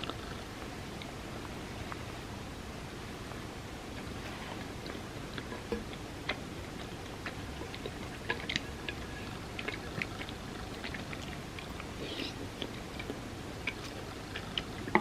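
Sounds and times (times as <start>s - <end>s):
background hiss: 0.0s - 15.0s
chewing clicks and smacks: 4.8s - 15.0s.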